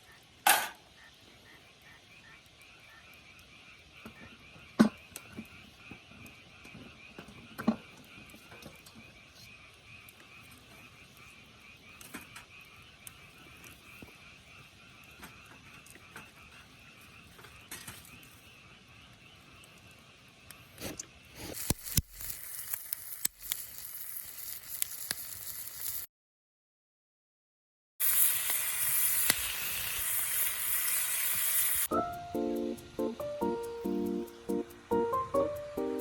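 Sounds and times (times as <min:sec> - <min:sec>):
chorus of calling animals: 0:00.0 - 0:20.8
food sizzling in a pan: 0:21.4 - 0:26.1, 0:28.0 - 0:31.9.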